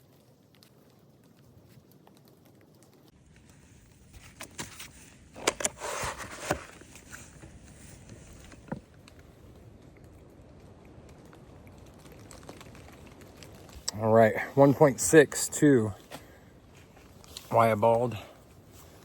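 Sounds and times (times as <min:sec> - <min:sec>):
short rustle: 0:03.4 - 0:08.9.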